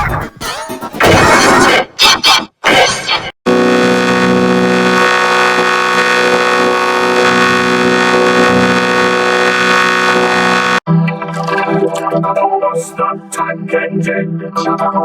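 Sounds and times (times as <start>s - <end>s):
processed drone of stacked tones: 3.0s - 15.0s.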